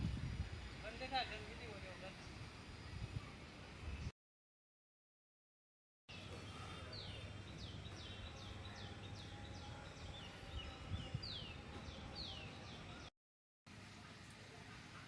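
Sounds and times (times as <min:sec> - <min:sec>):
birds chirping: 0:06.1 - 0:13.1.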